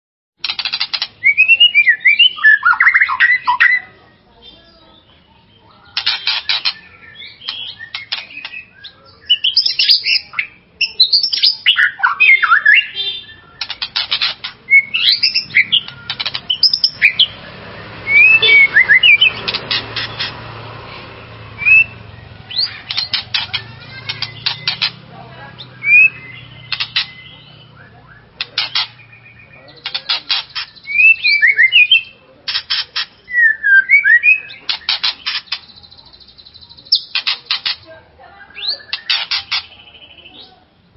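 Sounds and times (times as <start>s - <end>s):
bird rattling chatter: 0.4s - 1.2s, 5.9s - 8.6s, 13.6s - 17.3s, 18.6s - 25.1s, 26.4s - 27.3s, 28.4s - 29.1s, 29.8s - 30.9s, 32.5s - 33.2s, 34.6s - 37.9s, 38.9s - 39.7s
bird singing whistled phrases: 1.2s - 3.9s, 6.2s - 13.8s, 14.7s - 17.4s, 18.0s - 19.4s, 21.6s - 23.2s, 25.6s - 29.9s, 30.6s - 32.2s, 33.2s - 37.1s.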